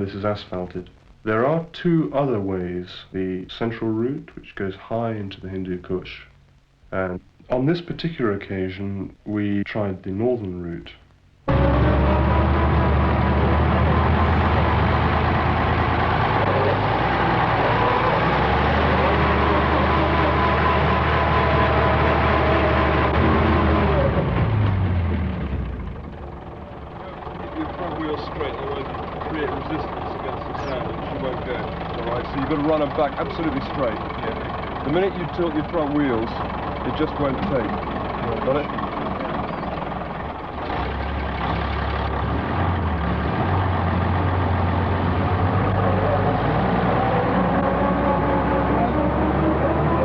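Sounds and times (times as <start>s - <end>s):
truck engine running: 11.5s - 50.0s.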